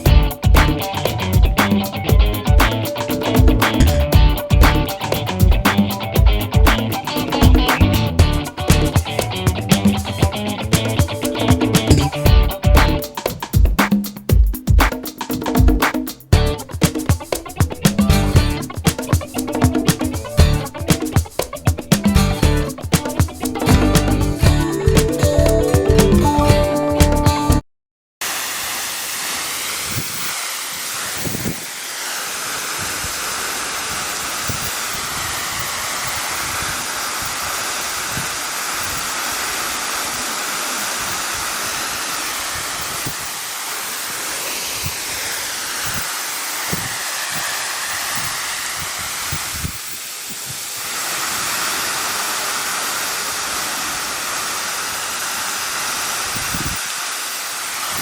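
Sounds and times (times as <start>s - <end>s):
waterfall rushing: 28.2s - 58.0s.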